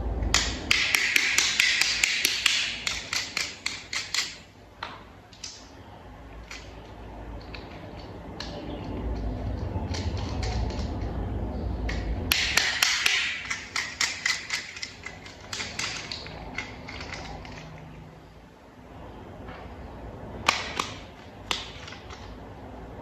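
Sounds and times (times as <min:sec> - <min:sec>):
plastic toy parts clicking: 0:00.3 - 0:04.4, 0:05.3 - 0:05.6, 0:06.4 - 0:11.1, 0:11.8 - 0:18.0.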